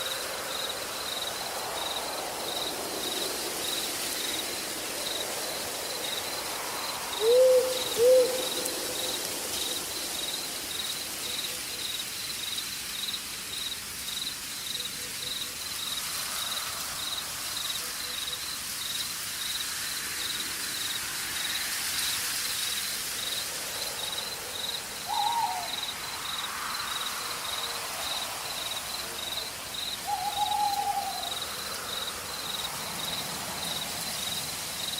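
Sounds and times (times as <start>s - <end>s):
insect chirping: 0.0s - 34.9s
soft hiss: 0.0s - 34.9s
owl hooting: 7.2s - 9.1s, 25.0s - 25.9s, 30.0s - 31.4s.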